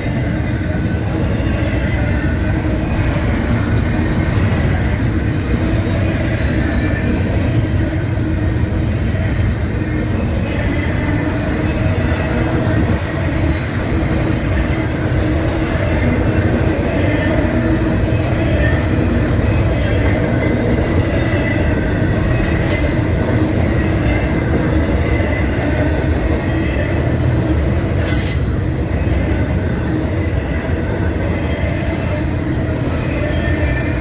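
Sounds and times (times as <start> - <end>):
train wheels rumbling on rail: 0.0 - 34.0
high wheel squeal: 1.0 - 27.2.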